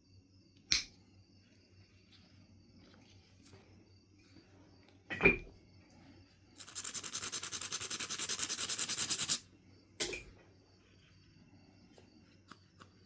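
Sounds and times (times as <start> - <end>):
sharp click of flint knapping: 0.7 - 1.0.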